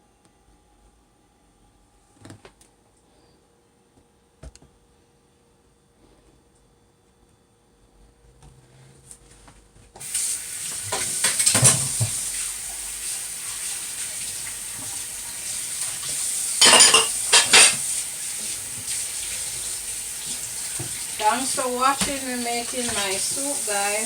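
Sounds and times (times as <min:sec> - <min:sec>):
tap water running: 0:10.0 - 0:24.0
pots and utensils clattering: 0:10.6 - 0:12.4, 0:14.1 - 0:23.7.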